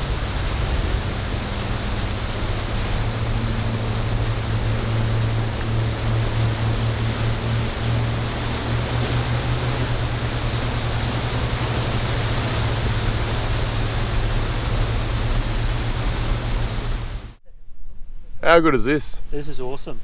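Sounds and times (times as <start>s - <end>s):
wind and water rushing: 0.0s - 17.4s
motorboat engine humming: 0.0s - 18.4s.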